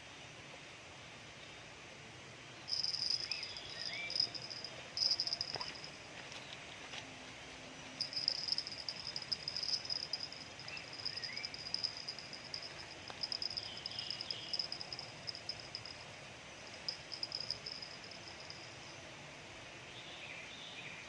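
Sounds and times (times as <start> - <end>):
insect chirping trill: 2.5 - 6.4, 7.8 - 19.7.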